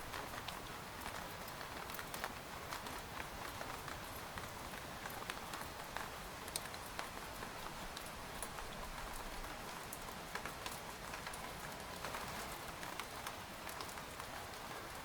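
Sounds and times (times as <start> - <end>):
rain on a tent: 0.0 - 15.0.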